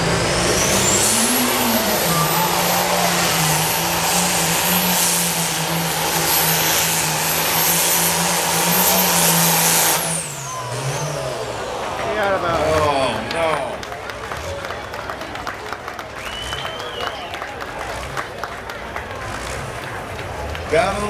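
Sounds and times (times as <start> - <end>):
turbocharger whistle: 0.0 - 11.5, 16.2 - 17.4
tractor engine at full throttle: 0.0 - 21.0.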